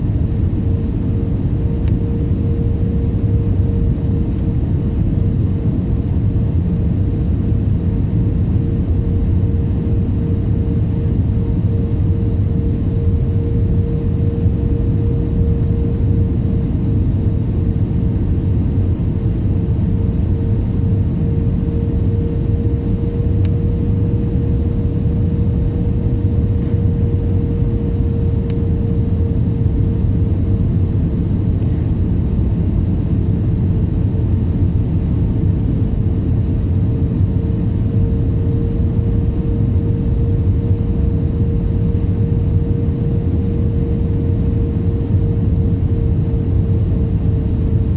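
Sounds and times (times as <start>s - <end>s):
airliner cabin engine rumble: 0.0s - 47.9s
constant hum: 0.0s - 47.9s.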